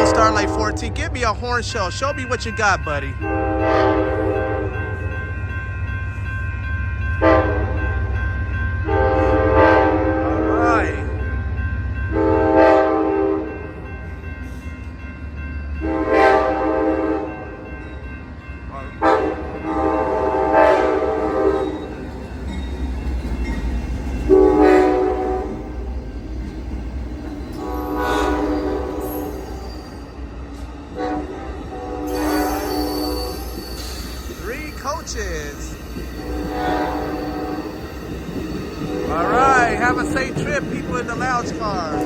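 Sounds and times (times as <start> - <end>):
train air horn blasts: 0.0 - 1.0, 3.2 - 4.8, 7.2 - 7.8, 8.9 - 10.6, 15.8 - 17.3, 19.0 - 21.7, 24.3 - 25.7, 27.6 - 29.3, 31.0 - 33.5, 36.2 - 37.7
train rumbling: 0.0 - 42.0
diesel engines rumbling: 39.0 - 42.0.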